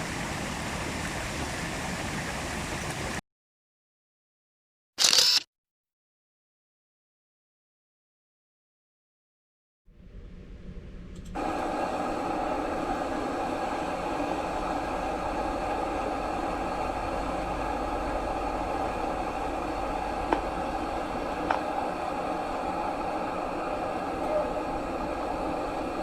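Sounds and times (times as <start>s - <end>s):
mountain stream flowing: 0.0s - 3.2s, 11.4s - 26.0s.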